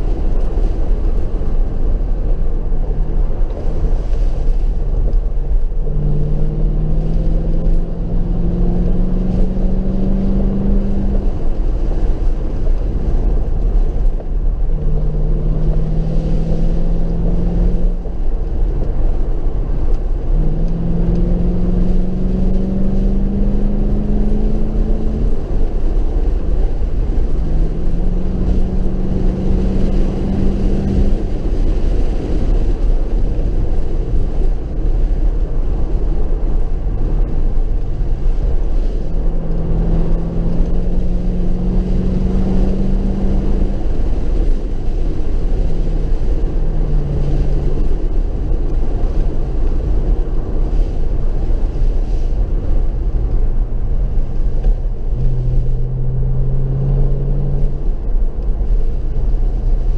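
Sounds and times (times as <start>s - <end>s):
car engine revving: 0.0s - 59.9s
wind and road noise: 0.0s - 59.9s.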